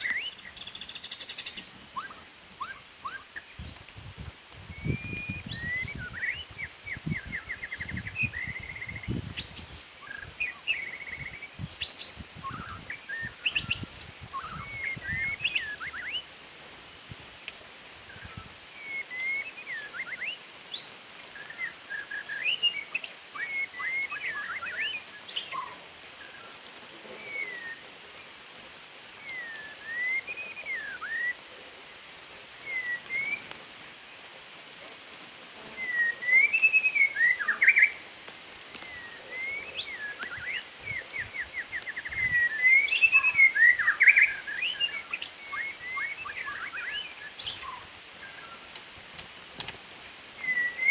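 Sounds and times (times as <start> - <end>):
bird singing whistled phrases: 0.0 - 3.3, 4.7 - 16.2, 18.2 - 25.7, 27.2 - 27.8, 29.2 - 31.4, 32.6 - 33.5, 35.7 - 38.0, 38.8 - 48.6, 50.4 - 50.9.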